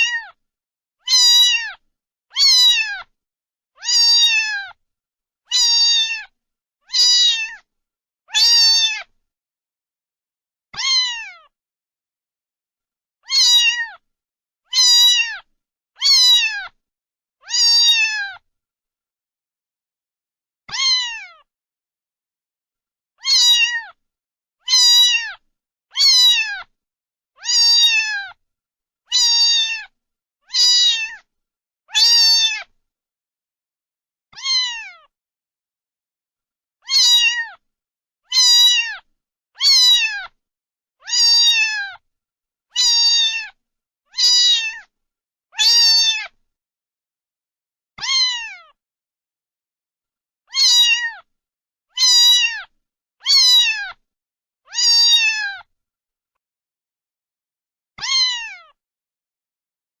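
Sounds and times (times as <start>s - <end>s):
cat meowing: 0.0s - 0.4s, 1.0s - 3.1s, 3.8s - 4.8s, 5.5s - 6.3s, 6.9s - 7.7s, 8.3s - 9.1s, 10.8s - 11.5s, 13.2s - 14.0s, 14.7s - 16.8s, 17.4s - 18.4s, 20.7s - 21.5s, 23.2s - 24.0s, 24.7s - 25.4s, 26.0s - 26.7s, 27.4s - 28.4s, 29.1s - 29.9s, 30.5s - 31.3s, 31.9s - 32.7s, 34.3s - 35.1s, 36.8s - 37.6s, 38.3s - 40.4s, 41.0s - 42.0s, 42.7s - 44.9s, 45.6s - 46.4s, 48.0s - 48.8s, 50.5s - 51.3s, 51.9s - 54.0s, 54.7s - 55.7s, 58.0s - 58.8s.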